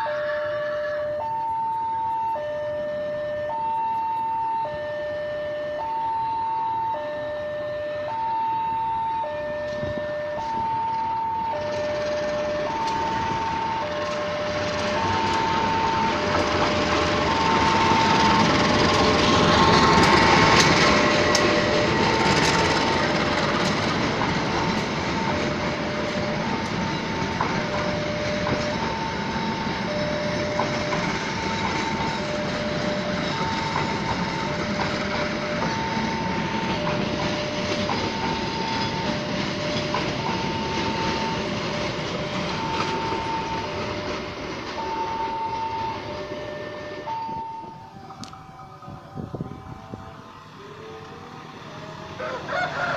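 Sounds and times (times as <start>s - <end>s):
diesel locomotive passing: 0.0s - 52.9s
level-crossing alarm ringing: 0.0s - 52.9s
train wheels clacking on rail joints: 9.6s - 46.4s.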